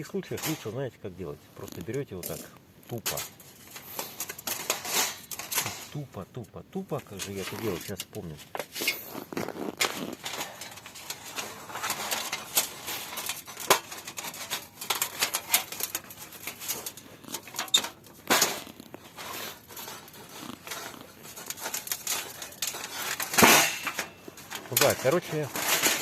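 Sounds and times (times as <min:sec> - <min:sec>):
metal panels clicking and tapping: 0:02.0 - 0:06.0, 0:10.2 - 0:26.0.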